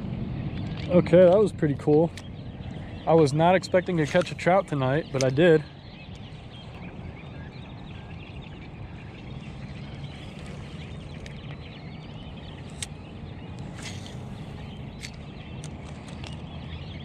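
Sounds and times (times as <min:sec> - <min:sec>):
birds chirping: 0:00.0 - 0:17.0
sharp clicks: 0:05.1 - 0:05.4, 0:12.6 - 0:16.5.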